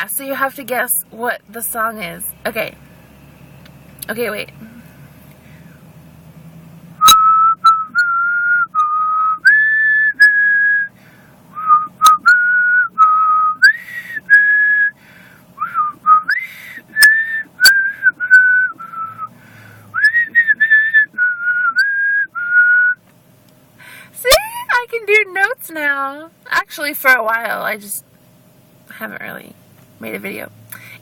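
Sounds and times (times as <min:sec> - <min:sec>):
woman whistling a melody: 0:07.0 - 0:10.9, 0:11.6 - 0:15.0, 0:15.6 - 0:19.3, 0:20.0 - 0:23.0.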